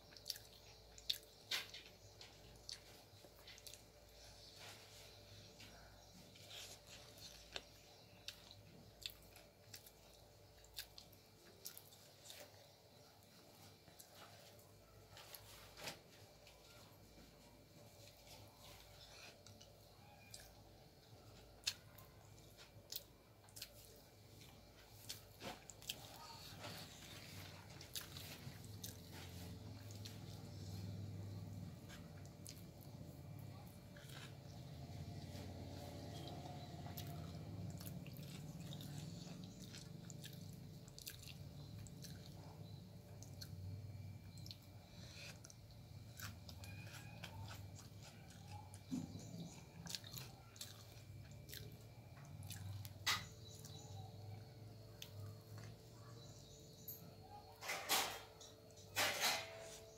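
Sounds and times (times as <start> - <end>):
wet chewing clicks: 0.0 - 4.0, 18.6 - 54.0
steady low hum: 0.0 - 59.9.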